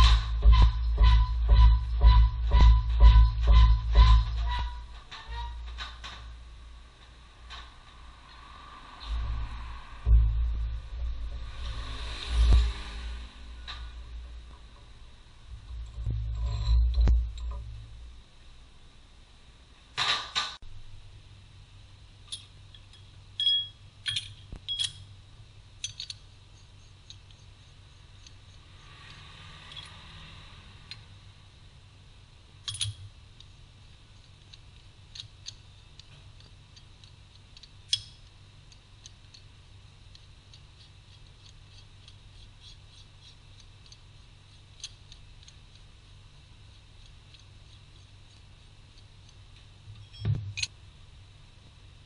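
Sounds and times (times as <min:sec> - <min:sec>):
low steady hum: 0:00.0 - 0:52.0
soft scraping: 0:08.3 - 0:14.9.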